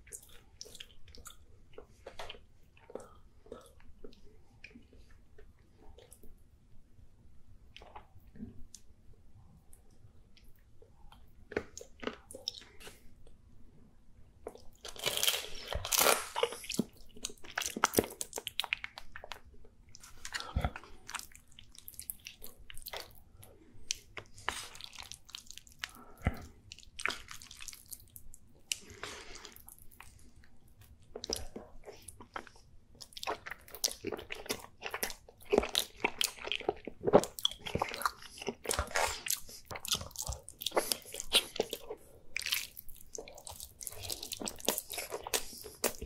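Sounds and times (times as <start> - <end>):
person chewing wetly: 14.4 - 46.0.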